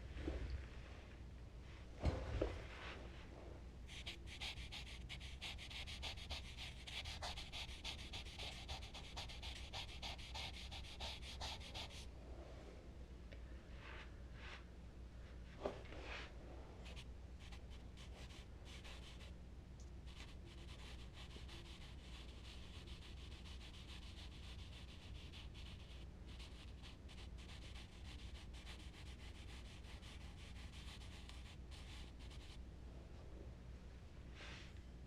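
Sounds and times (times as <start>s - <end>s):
charcoal scratching on paper: 3.9s - 12.0s, 16.8s - 19.3s, 20.1s - 32.6s.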